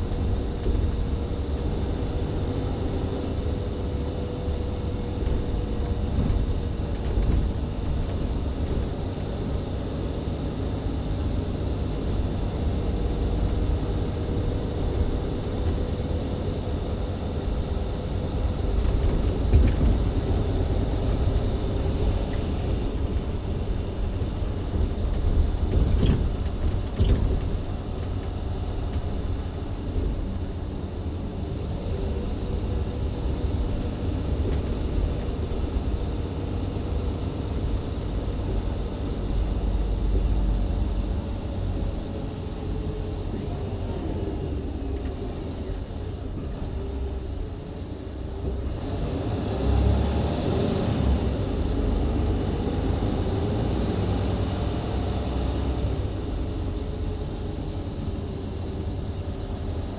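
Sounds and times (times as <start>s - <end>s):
bus diesel engine running: 0.0s - 59.9s
road rumble: 0.0s - 59.9s
rattles and knocks: 4.5s - 10.1s, 13.2s - 30.9s.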